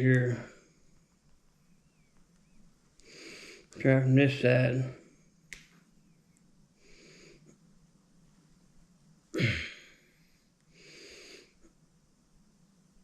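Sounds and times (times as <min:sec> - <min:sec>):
man breathing hard: 0:03.0 - 0:03.8, 0:10.7 - 0:11.6.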